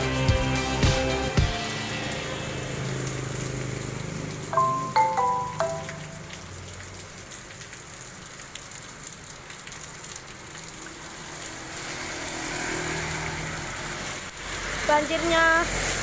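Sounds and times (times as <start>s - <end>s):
heavy rain falling: 1.2s - 16.0s
drops ticking on hard surfaces: 4.6s - 7.7s.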